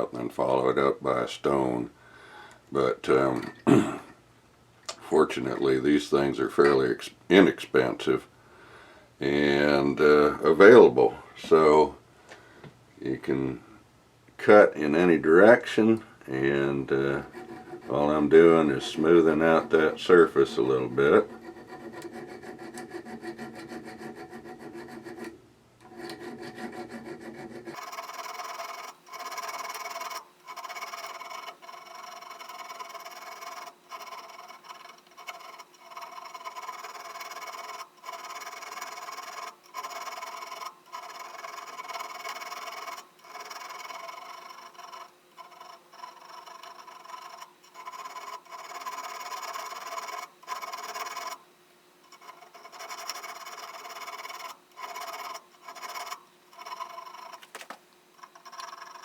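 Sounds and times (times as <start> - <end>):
file rasping on steel: 16.9 - 51.4, 52.0 - 59.0.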